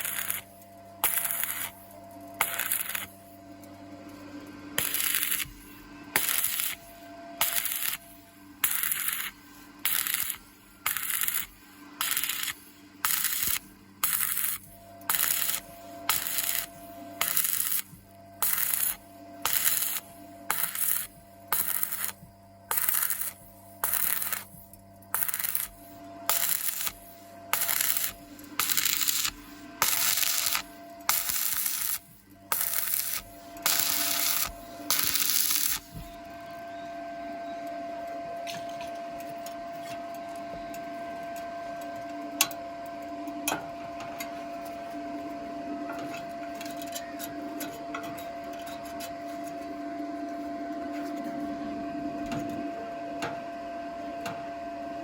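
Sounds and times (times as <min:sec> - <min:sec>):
crackling welding arc bursts: 0:00.0 - 0:03.3, 0:04.8 - 0:36.1
steady hum with faint tone: 0:00.0 - 0:55.0.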